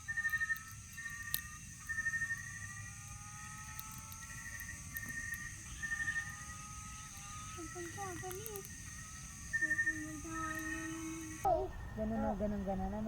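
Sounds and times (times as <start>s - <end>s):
insect trilling calls: 0.0s - 12.9s
crickets droning: 0.0s - 13.0s.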